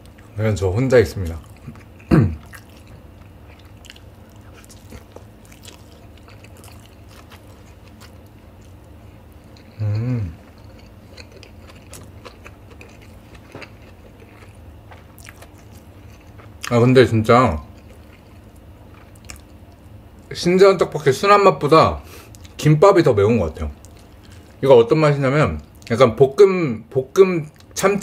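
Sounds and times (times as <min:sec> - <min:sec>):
wet chewing with crunches: 0:01.1 - 0:16.8, 0:17.6 - 0:20.3, 0:23.8 - 0:24.6
person humming: 0:09.8 - 0:10.4.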